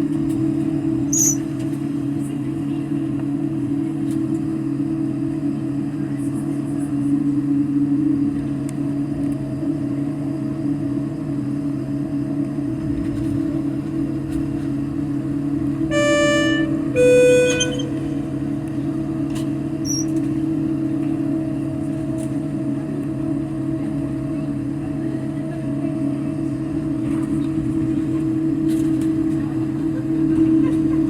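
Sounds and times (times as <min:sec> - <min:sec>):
airliner engines humming: 0:00.0 - 0:31.0
two-tone cabin chime: 0:15.9 - 0:18.5.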